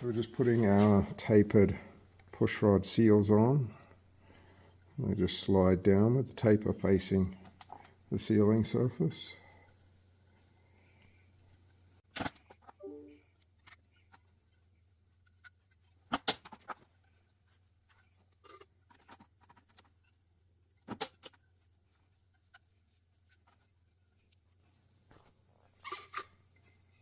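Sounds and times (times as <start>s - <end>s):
metal parts and tools clattering: 25.8s - 27.0s.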